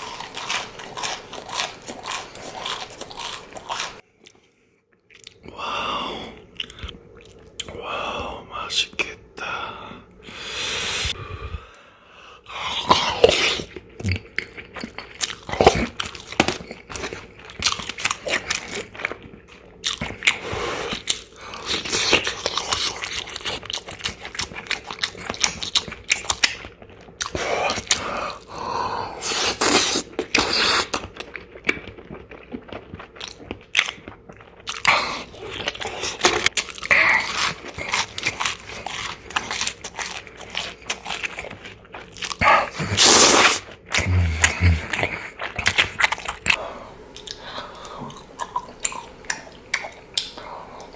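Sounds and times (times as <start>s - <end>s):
crunchy bites and chewing: 0.0s - 4.0s, 12.8s - 28.6s, 29.2s - 46.6s.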